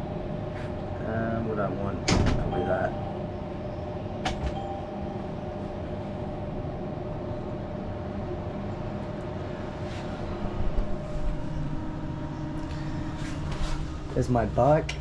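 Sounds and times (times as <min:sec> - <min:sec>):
mechanical hum: 0:00.0 - 0:15.0
faint steady tones: 0:02.5 - 0:09.4.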